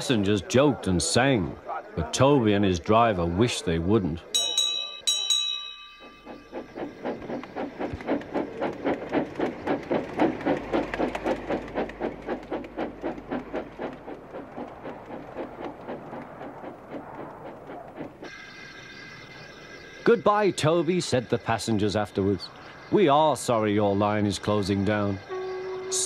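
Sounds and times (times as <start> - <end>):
train rhythmic chug: 4.2 - 26.0
steady ringing tone: 4.3 - 8.6, 18.2 - 26.0.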